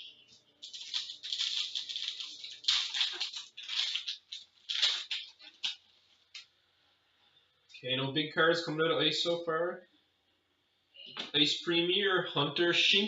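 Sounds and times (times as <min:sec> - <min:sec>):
trading cards rustling: 0:00.6 - 0:06.2.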